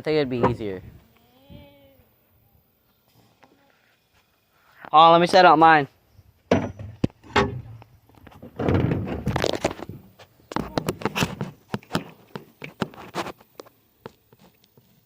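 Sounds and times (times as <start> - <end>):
handling knocks and thumps: 6.5 - 13.4
rustling and scraping: 6.5 - 15.0.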